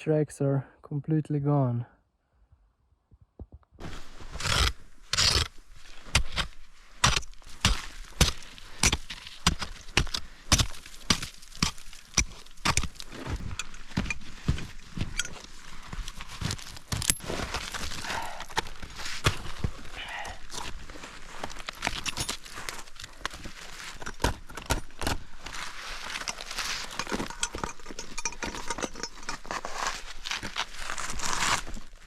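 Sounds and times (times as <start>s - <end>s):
footsteps in snow: 3.8s - 24.0s.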